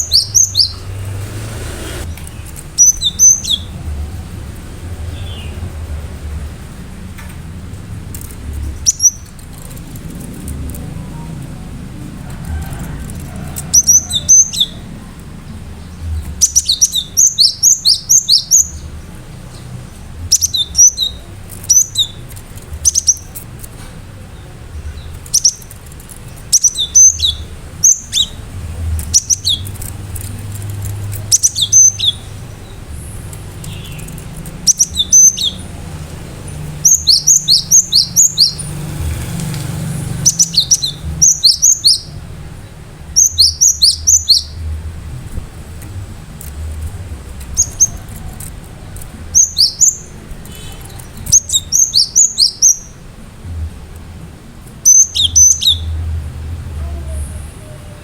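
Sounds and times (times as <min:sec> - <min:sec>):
bird singing high sharp notes: 0:02.0 - 0:03.8, 0:16.4 - 0:18.9, 0:26.4 - 0:42.2, 0:43.2 - 0:44.7, 0:49.3 - 0:53.0, 0:54.8 - 0:56.0.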